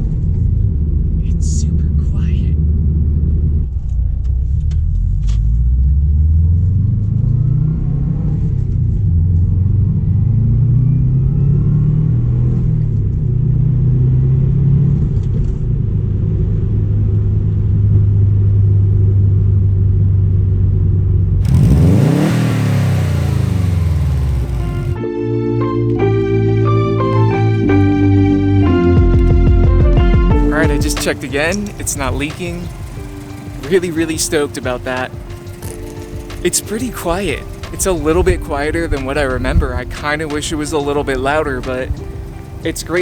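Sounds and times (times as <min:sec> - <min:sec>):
car engine revving: 0:21.3 - 0:25.0, 0:30.3 - 0:43.0.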